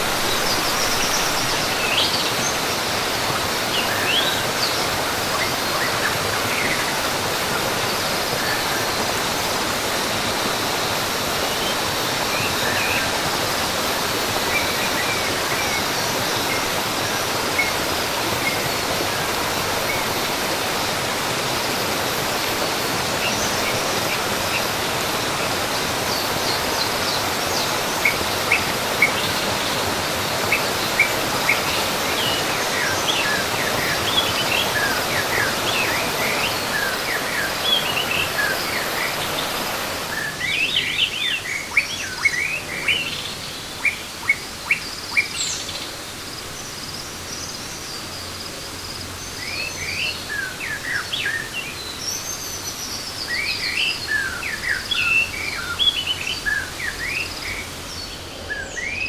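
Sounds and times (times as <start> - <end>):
birds chirping: 0.0 - 9.9, 49.0 - 59.0
waterfall rushing: 0.0 - 44.3, 53.0 - 59.0.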